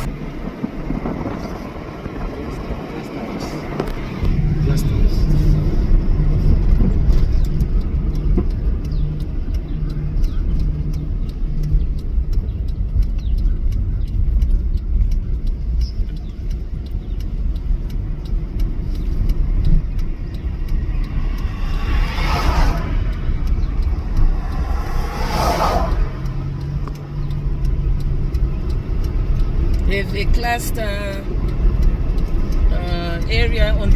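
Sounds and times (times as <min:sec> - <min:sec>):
car road and engine rumble: 0:00.0 - 0:33.9
whooshes of rushing noise: 0:19.9 - 0:26.8.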